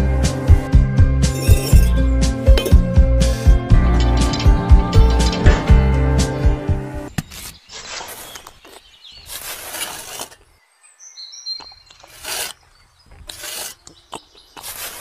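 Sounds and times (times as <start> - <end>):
metal trowel scraping cement: 1.3 - 5.4, 9.2 - 10.4, 11.9 - 14.0, 14.6 - 15.0
faint bird chirps: 10.4 - 15.0.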